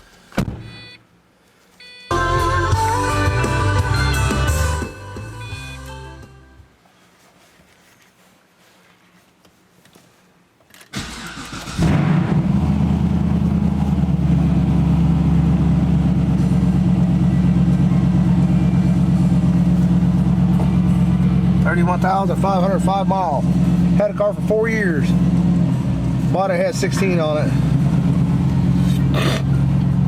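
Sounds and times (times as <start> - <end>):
car starter cranking: 10.8 - 13.1
car engine idling: 11.0 - 30.0.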